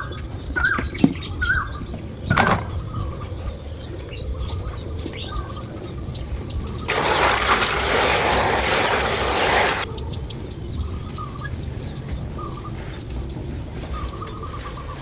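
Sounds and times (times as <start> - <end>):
small birds chirping: 0.0 - 15.0
loud hiss: 6.9 - 9.9.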